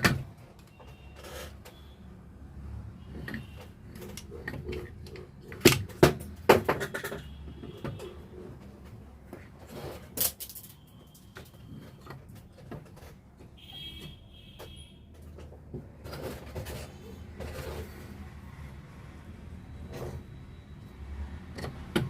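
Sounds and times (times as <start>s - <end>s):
hand tools clicking and knocking: 3.1s - 17.9s.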